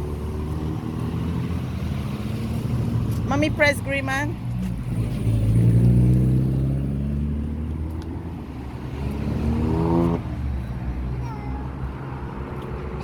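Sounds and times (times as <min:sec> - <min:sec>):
vehicle engine passing: 0:00.0 - 0:13.0.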